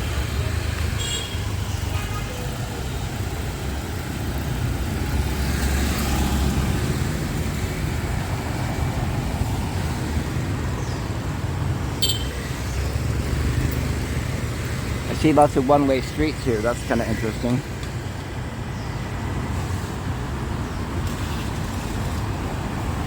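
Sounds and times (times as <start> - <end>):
passing vehicles rumbling: 0.0 - 23.0.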